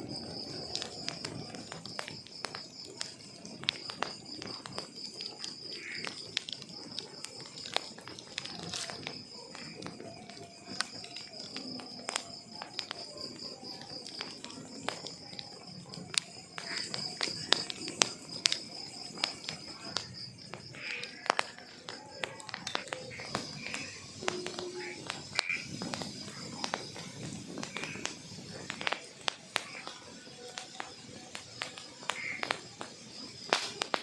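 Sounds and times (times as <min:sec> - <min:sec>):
wood fire crackling and popping: 0:00.0 - 0:34.0
high-pitched hiss: 0:10.6 - 0:34.0.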